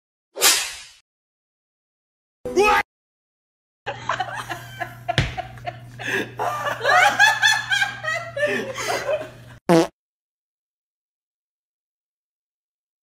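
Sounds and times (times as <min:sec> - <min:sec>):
person laughing: 0:03.9 - 0:09.6.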